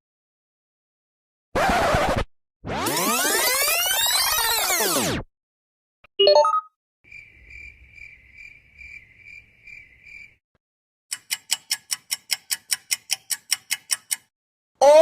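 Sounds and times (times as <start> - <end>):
cricket chirping trill: 7.1 - 10.4.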